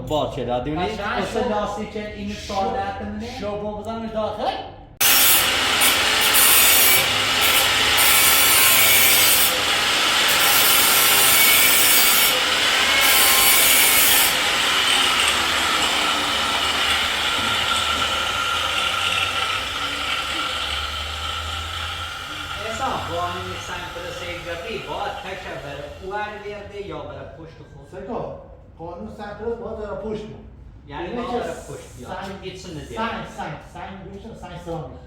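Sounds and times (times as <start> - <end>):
angle grinder grinding metal: 5.0 - 26.1.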